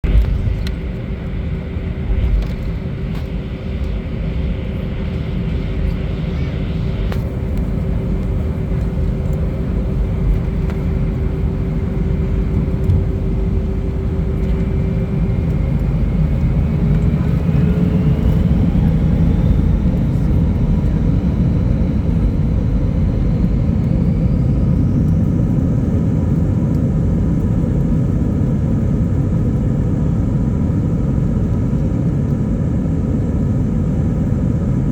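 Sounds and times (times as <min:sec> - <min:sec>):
rising engine whine: 0:00.0 - 0:26.8
jet engines rumbling: 0:00.0 - 0:34.9.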